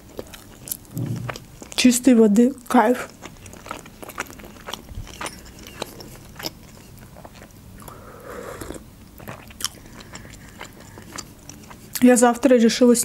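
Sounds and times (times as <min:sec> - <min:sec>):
chewing with wet clicks: 0:00.0 - 0:08.0, 0:08.6 - 0:12.6
sip from a mug: 0:07.8 - 0:08.8.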